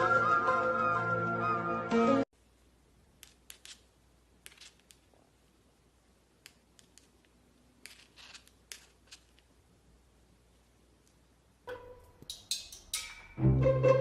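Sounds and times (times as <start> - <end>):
background music: 0.0 - 2.3, 11.7 - 14.0
sharp clicks and snips: 6.4 - 9.5.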